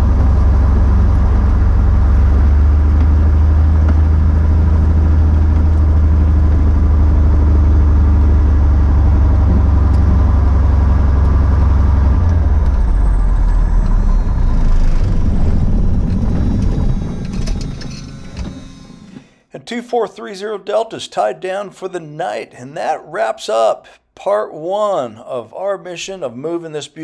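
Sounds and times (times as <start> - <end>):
aircraft engine droning: 0.0 - 19.2.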